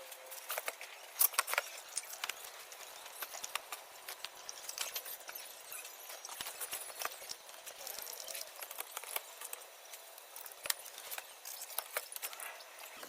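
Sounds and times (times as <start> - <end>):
tools and metal parts clicking: 0.0 - 13.0.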